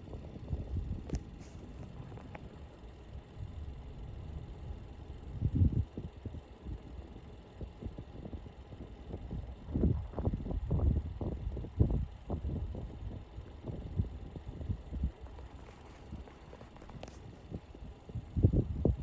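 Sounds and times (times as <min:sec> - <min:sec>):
vehicle rumble with thumps: 0:14.6 - 0:19.0.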